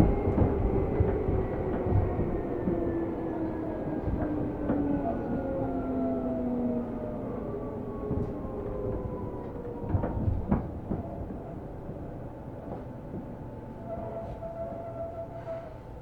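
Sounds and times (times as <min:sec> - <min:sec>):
train running rumble: 0:00.0 - 0:16.0.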